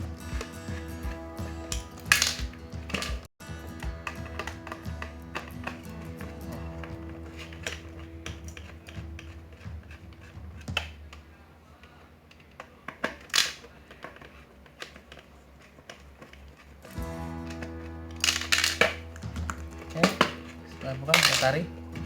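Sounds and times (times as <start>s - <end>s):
background music: 0.0s - 10.1s, 16.9s - 22.0s
screwdriver clicking and scraping metal: 0.3s - 11.2s, 12.3s - 21.9s.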